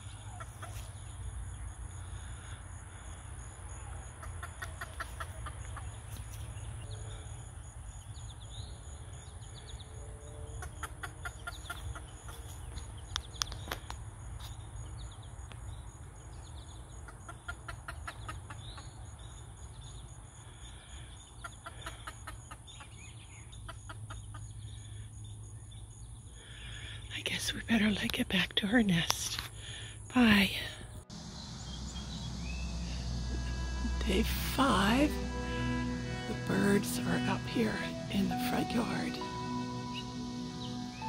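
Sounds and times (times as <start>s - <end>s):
bird clucking: 0.1s - 1.0s, 4.2s - 6.0s
low steady rumble: 30.2s - 41.0s.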